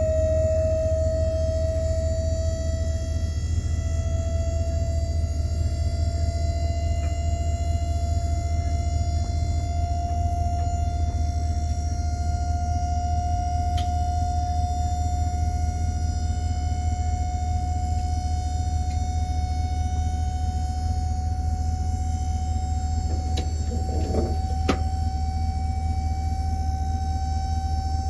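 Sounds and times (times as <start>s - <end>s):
vehicle engine rumble: 0.0s - 27.1s
steady whine: 0.0s - 28.0s.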